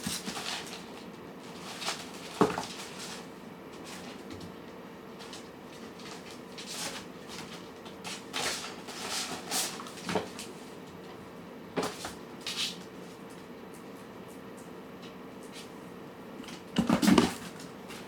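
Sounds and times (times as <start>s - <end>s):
cats chewing and scraping: 0.0s - 18.0s.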